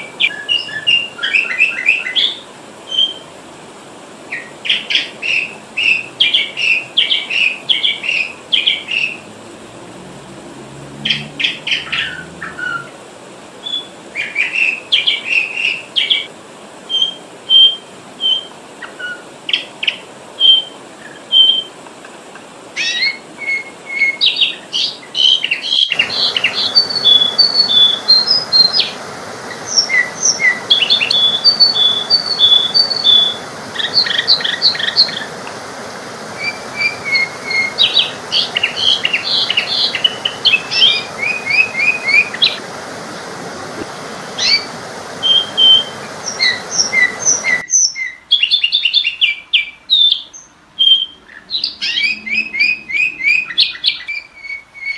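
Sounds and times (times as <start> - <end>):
background hiss: 0.0 - 54.9
bulbul chirping and whistling: 16.9 - 18.5, 20.4 - 21.7, 25.2 - 35.3, 36.4 - 42.6, 44.3 - 49.2, 50.0 - 54.9.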